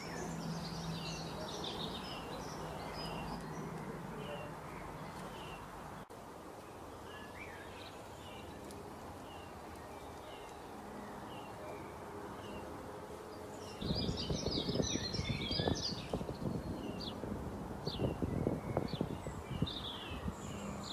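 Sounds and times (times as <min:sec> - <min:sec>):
birds chattering: 0:00.0 - 0:06.1, 0:06.7 - 0:17.3
bird chirping: 0:00.0 - 0:20.9.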